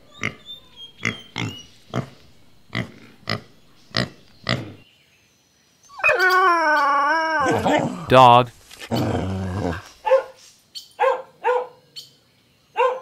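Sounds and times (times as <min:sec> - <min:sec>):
pig grunting: 0:00.0 - 0:04.8, 0:07.4 - 0:10.0
long wavering animal cry: 0:05.9 - 0:08.1.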